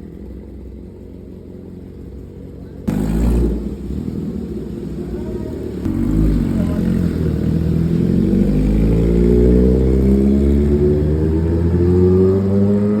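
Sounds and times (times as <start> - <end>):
motorcycle engine revving up: 2.8 - 13.0.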